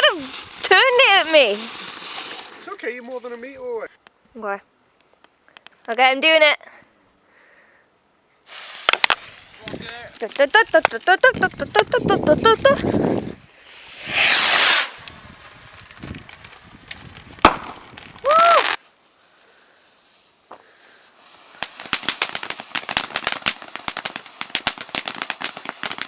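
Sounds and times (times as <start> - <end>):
firework hissing spurts: 0.0 - 3.7, 8.4 - 26.0
firework rapid crackles: 0.0 - 3.8, 8.4 - 19.0, 19.8 - 26.0
firework click: 0.0 - 4.2, 8.5 - 19.0, 21.4 - 26.0.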